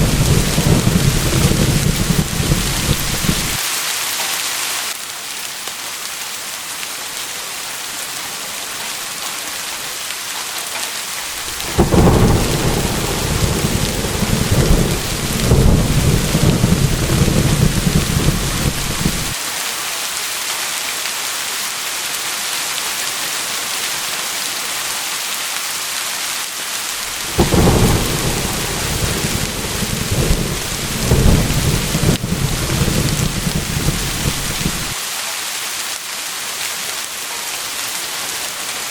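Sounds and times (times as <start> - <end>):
thunder clap and rumble: 0.0 - 3.6, 11.3 - 19.4, 27.0 - 35.0
steady rain: 0.0 - 38.9.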